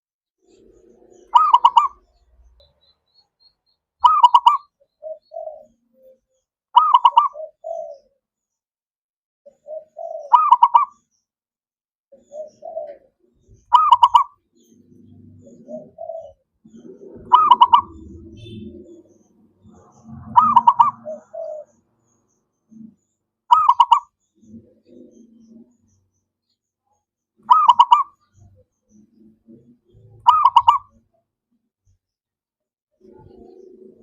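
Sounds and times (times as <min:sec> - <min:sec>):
dove cooing: 0:00.4 - 0:02.4, 0:04.0 - 0:06.2, 0:06.8 - 0:08.2, 0:09.5 - 0:11.0, 0:12.1 - 0:26.0, 0:27.4 - 0:31.1, 0:33.0 - 0:34.0.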